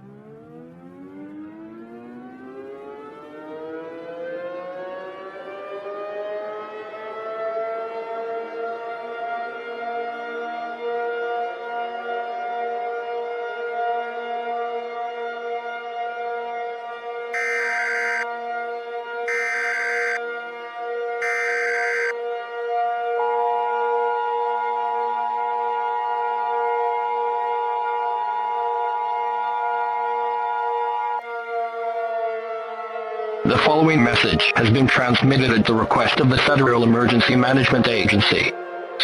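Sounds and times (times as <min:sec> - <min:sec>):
warning siren winding up: 0:00.0 - 0:06.0, 0:17.3 - 0:18.4, 0:19.2 - 0:20.2, 0:21.1 - 0:22.2
steady drone of held tones: 0:17.3 - 0:18.4, 0:19.3 - 0:20.3, 0:21.2 - 0:22.2
electronic alarm buzzing: 0:17.4 - 0:18.3, 0:19.3 - 0:20.2, 0:21.2 - 0:22.2.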